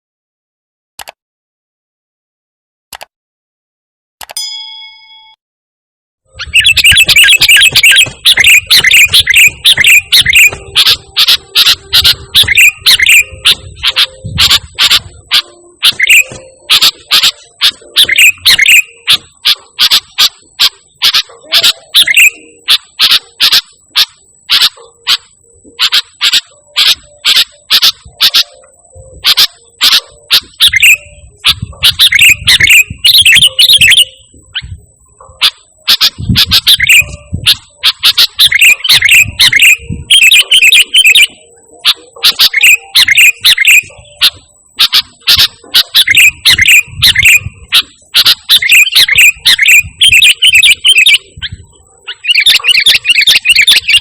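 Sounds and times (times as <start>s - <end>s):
bird chirping: 6.3s - 54.0s.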